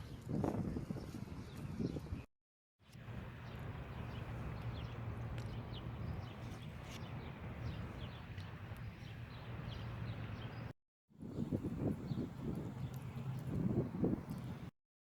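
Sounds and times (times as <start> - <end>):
small birds chirping: 2.9 - 10.7, 11.3 - 14.7
low outdoor rumble: 3.0 - 10.7.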